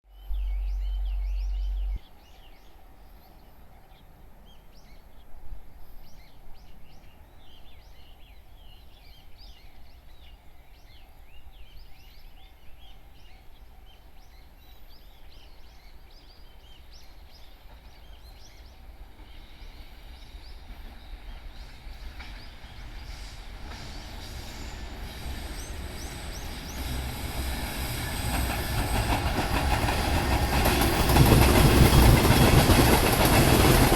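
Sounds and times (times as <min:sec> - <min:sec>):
small birds chirping: 0:00.1 - 0:02.7, 0:06.0 - 0:30.8
freight train rumbling: 0:00.2 - 0:02.0, 0:17.2 - 0:33.9
low wind-like noise: 0:00.2 - 0:03.8.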